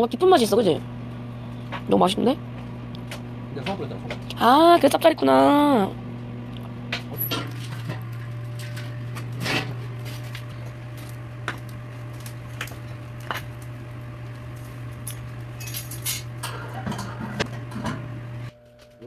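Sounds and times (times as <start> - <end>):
steady low hum: 0.0 - 19.0
utensils and dishes clinking: 15.0 - 18.0.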